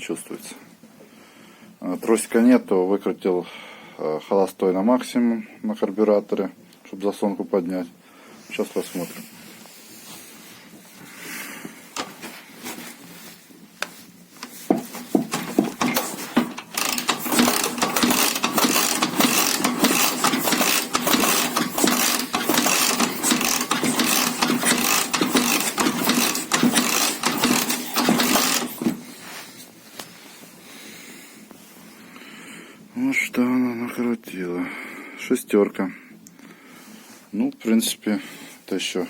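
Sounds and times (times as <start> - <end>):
engine cranking clatter: 14.4 - 29.1.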